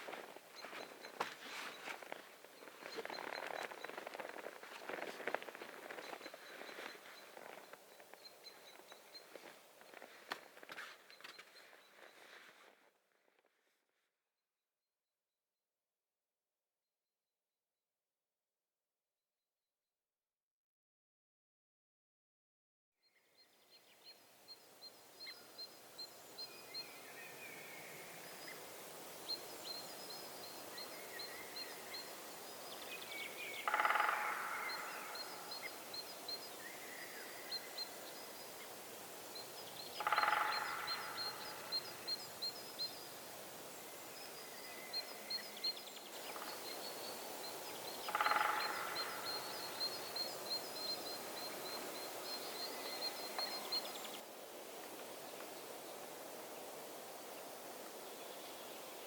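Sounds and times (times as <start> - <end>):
small bird chirping: 0.0 - 10.3, 39.3 - 43.2, 44.2 - 54.2.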